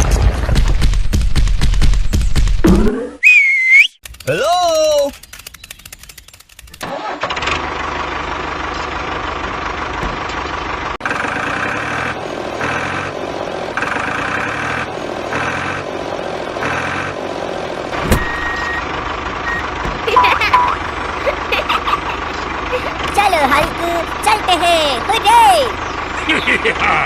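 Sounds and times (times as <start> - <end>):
tractor engine running: 4.0 - 27.0
reversing alarm beeping: 18.2 - 20.8.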